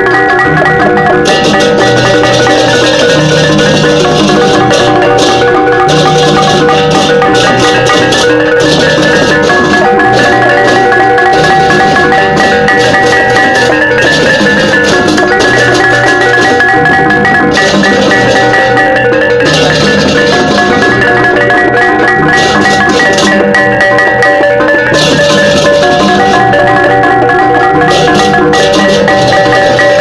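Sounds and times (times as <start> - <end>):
cymbals clashing: 0.0 - 30.0
gamelan gong-chimes and metallophones: 0.0 - 30.0.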